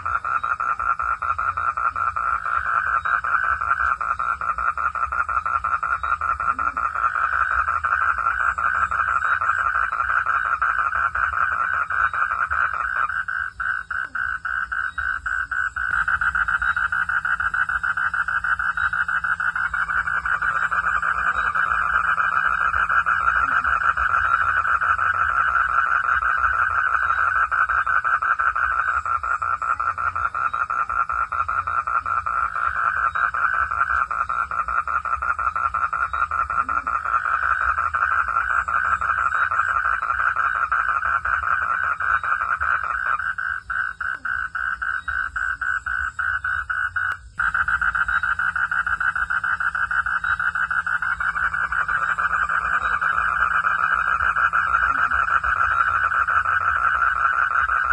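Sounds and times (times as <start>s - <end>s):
frogs trilling: 0.0s - 57.9s
low steady rumble: 13.2s - 57.9s.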